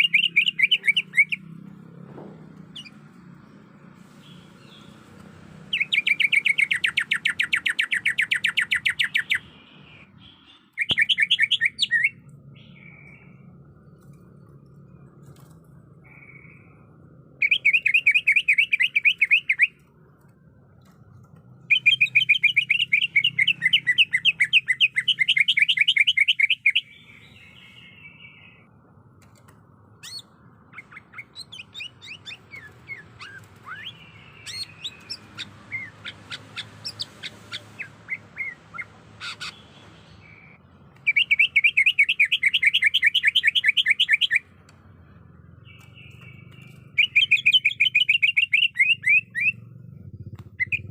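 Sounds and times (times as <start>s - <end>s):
bird chirps and whistles: 0.0s - 1.4s, 5.7s - 13.3s, 17.4s - 19.8s, 21.7s - 28.6s, 30.0s - 39.6s, 40.2s - 44.4s, 45.7s - 49.6s, 50.5s - 50.9s
bird rapid chattering notes: 0.0s - 1.6s, 30.0s - 44.6s, 45.6s - 50.9s.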